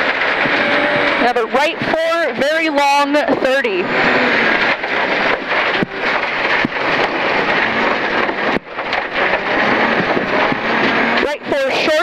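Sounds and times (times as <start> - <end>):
tyre road and wind noise: 0.0 - 12.0
sharp knocks: 4.6 - 11.3.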